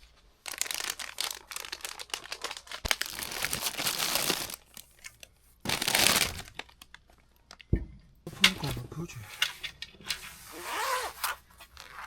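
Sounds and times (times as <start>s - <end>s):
crinkling and rustling: 0.0s - 7.7s.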